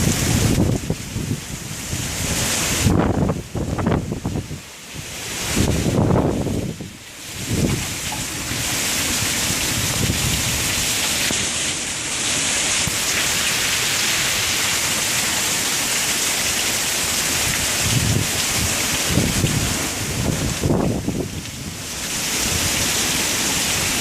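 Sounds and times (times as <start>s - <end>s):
wind buffeting microphone: 0.0s - 11.4s, 17.4s - 24.0s
heavy rain pouring: 0.0s - 24.0s.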